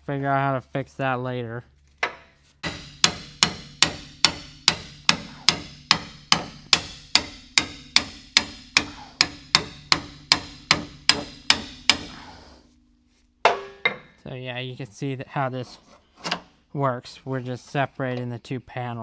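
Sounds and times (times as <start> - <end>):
hammer striking chisel on steel: 2.0 - 12.4, 13.4 - 14.2.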